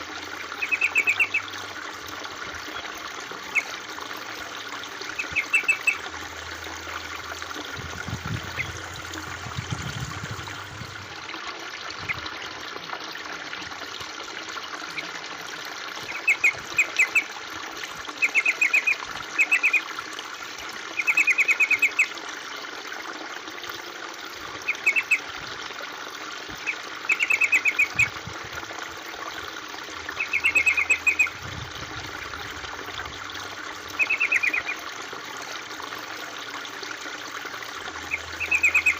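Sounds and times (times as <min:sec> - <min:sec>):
water trickling: 0:00.0 - 0:38.9
bird chirping rapidly: 0:00.6 - 0:01.4, 0:05.2 - 0:06.0, 0:27.1 - 0:28.1, 0:30.2 - 0:31.3, 0:34.0 - 0:34.8, 0:38.0 - 0:38.9.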